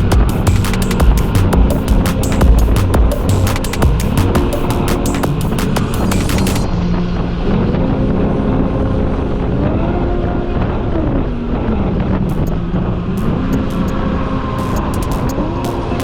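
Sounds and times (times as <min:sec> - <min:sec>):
rapid sharp clicks: 0:00.0 - 0:06.7, 0:12.3 - 0:14.0, 0:14.6 - 0:16.0.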